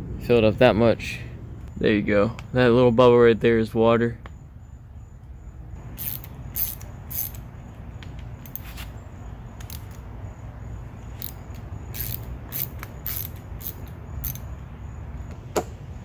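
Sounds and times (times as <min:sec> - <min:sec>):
metal parts clicking and scraping: 0:06.0 - 0:07.5, 0:08.4 - 0:08.9, 0:09.6 - 0:10.1, 0:11.2 - 0:14.5.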